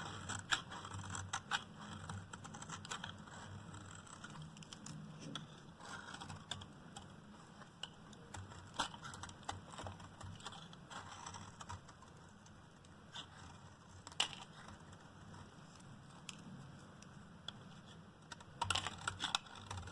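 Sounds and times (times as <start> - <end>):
blade cutting hard soap: 0.0 - 4.6, 18.3 - 19.9.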